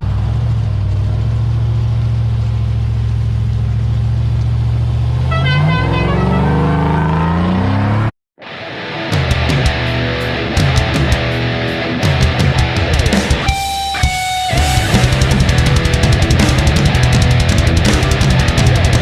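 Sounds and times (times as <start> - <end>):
car engine idling and revving: 0.0 - 8.1, 14.6 - 19.0
high tones: 5.2 - 8.1
electric guitar rock music: 8.4 - 19.0.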